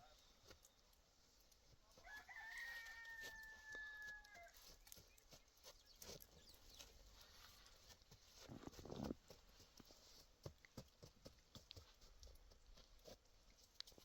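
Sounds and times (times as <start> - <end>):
rooster crowing: 2.0 - 4.6.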